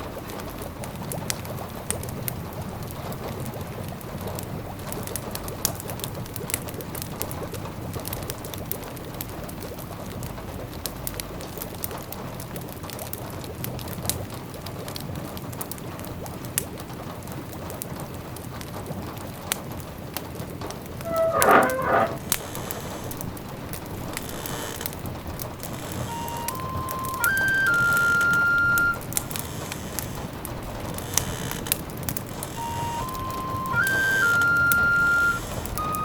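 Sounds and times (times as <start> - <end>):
wood fire crackling: 21.0 - 35.7.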